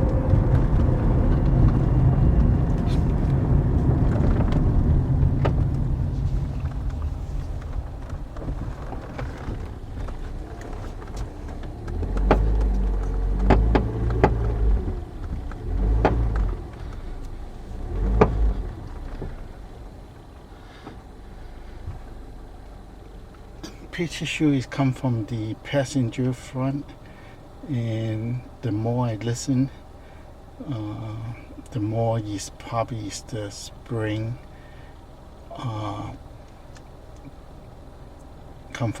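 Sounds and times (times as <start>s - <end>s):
low rumble: 0.0s - 23.6s
car suspension clunking: 0.0s - 39.0s
sharp knocks and dull thuds: 0.1s - 17.3s, 18.0s - 19.5s.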